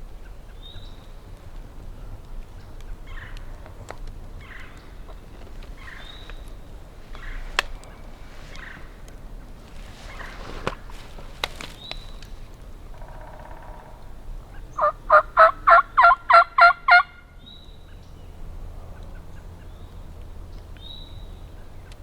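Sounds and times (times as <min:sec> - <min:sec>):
wild turkey gobbling: 0:12.8 - 0:17.2.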